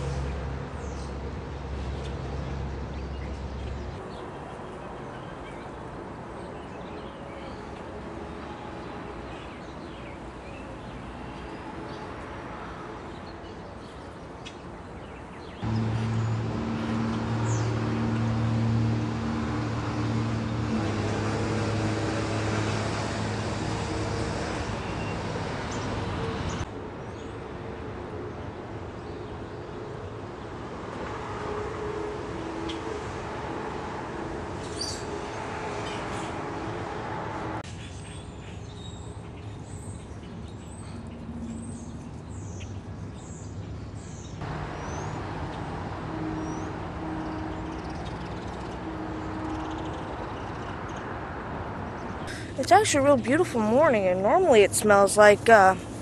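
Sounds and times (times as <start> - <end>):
birds chirping: 13.2 - 20.6, 37.8 - 56.0
loud motor running: 15.6 - 24.4
low engine hum: 15.6 - 26.7, 44.4 - 56.0.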